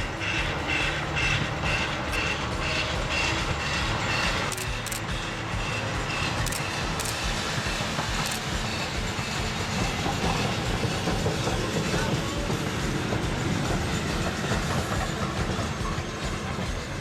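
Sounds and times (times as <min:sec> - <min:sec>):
train wheels rumbling: 0:00.0 - 0:17.0
wheels clacking over rail joints: 0:00.0 - 0:17.0
sharp clicks: 0:04.2 - 0:05.1, 0:06.4 - 0:07.3, 0:08.2 - 0:08.5.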